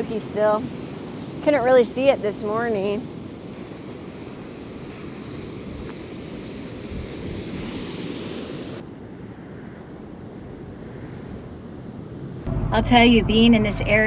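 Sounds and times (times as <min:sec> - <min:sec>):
ocean surf washing on beach: 0:00.0 - 0:11.8
wind blowing across microphone: 0:00.0 - 0:14.0.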